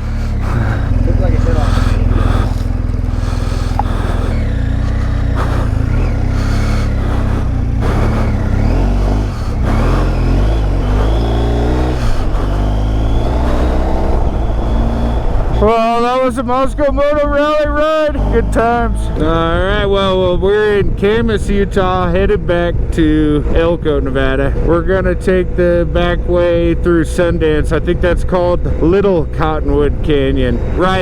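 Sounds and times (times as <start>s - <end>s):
wind rush: 0.0s - 16.6s
motorcycle engine: 0.0s - 31.0s.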